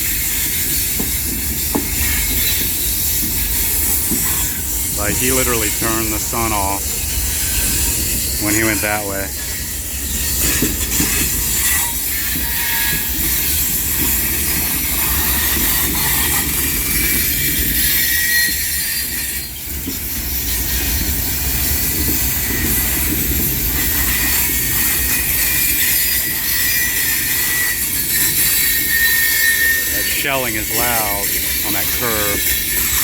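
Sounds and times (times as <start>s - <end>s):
freight train rumbling: 0.0s - 12.4s
train wheels squealing on rail: 0.0s - 33.0s.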